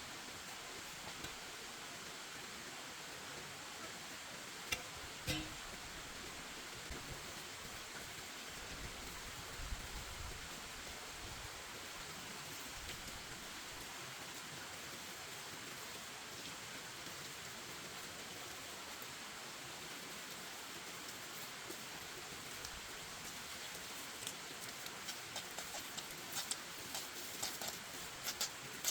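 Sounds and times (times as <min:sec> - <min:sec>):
background hiss: 0:00.0 - 0:28.9
sharp knocks: 0:04.7 - 0:05.8.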